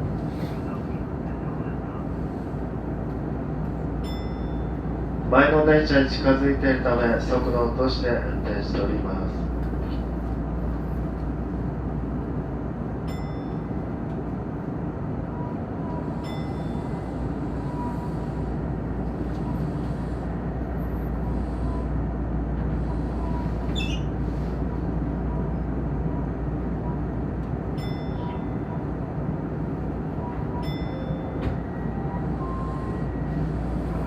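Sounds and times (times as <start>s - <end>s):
electric train running rumble: 0.0s - 34.0s
brief wavering squeal: 23.7s - 24.1s.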